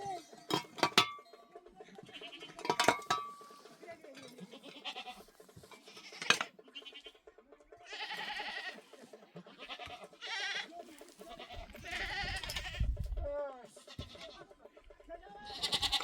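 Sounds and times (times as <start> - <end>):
goats bleating: 1.9 - 2.9, 4.3 - 13.0, 13.6 - 14.6, 15.3 - 16.0.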